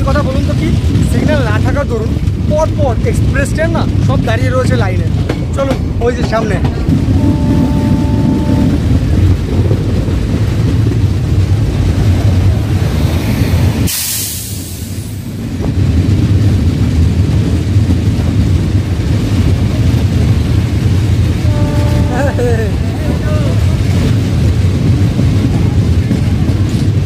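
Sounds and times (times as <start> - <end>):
train wheels rumbling on track: 0.0 - 27.0
short hiss: 13.8 - 15.2.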